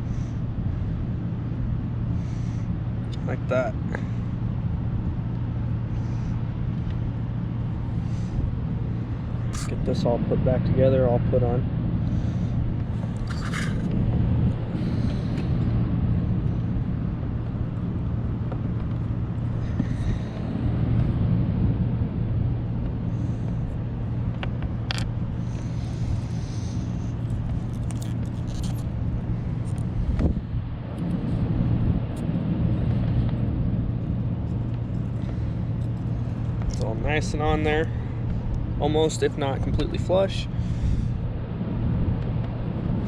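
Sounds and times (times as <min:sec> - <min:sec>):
low motor rumble: 0:00.0 - 0:43.0
parts clicking and rattling: 0:13.1 - 0:13.9, 0:24.4 - 0:25.1, 0:27.2 - 0:28.9.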